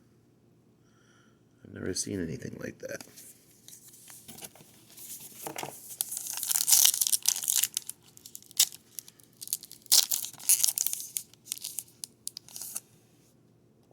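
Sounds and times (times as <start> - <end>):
plastic sleeves crinkling: 3.0 - 12.8.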